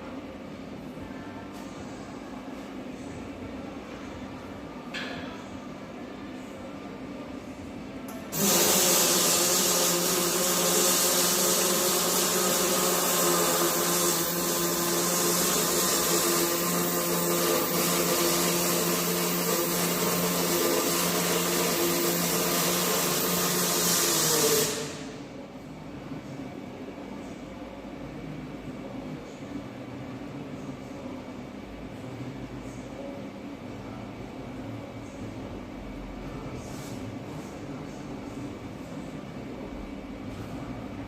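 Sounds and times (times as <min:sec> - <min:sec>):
welding arc crackling and hissing: 0:08.3 - 0:25.2.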